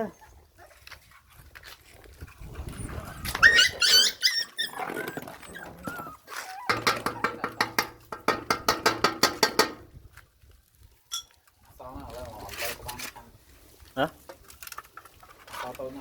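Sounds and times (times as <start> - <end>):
puppies whining and yipping: 2.4 - 8.2.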